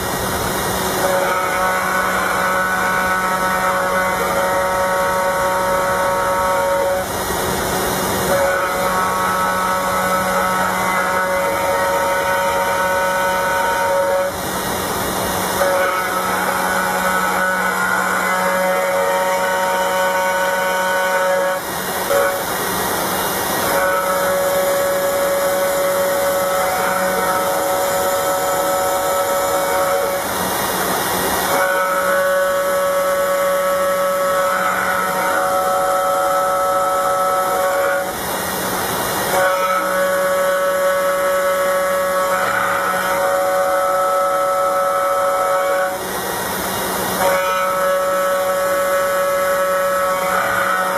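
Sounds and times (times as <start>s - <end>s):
cnc router whine: 0.0s - 50.9s
hissing machining noise: 0.0s - 50.9s.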